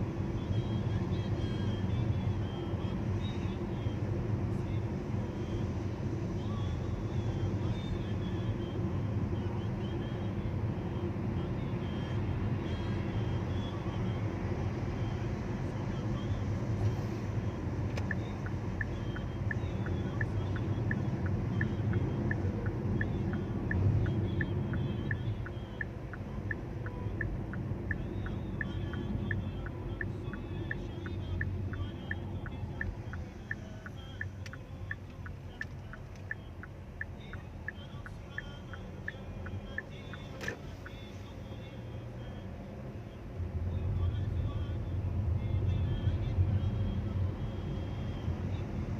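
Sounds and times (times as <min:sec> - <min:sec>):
street traffic rumble: 0:00.0 - 0:48.9
steady ticking: 0:18.0 - 0:41.0.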